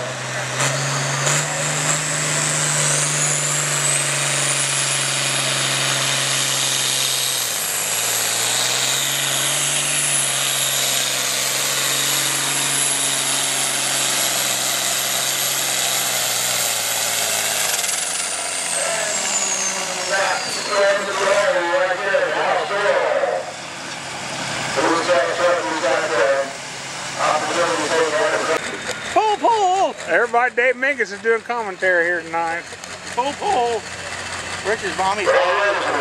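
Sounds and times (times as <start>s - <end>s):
tractor diesel engine under load: 0.0s - 36.0s
high whine: 17.3s - 29.3s.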